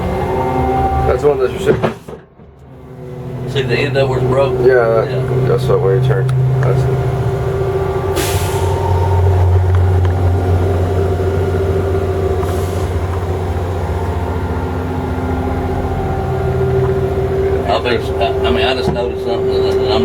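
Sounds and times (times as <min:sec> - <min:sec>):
diesel engine running: 0:00.0 - 0:20.0
air hisses: 0:08.1 - 0:09.5, 0:12.4 - 0:13.4.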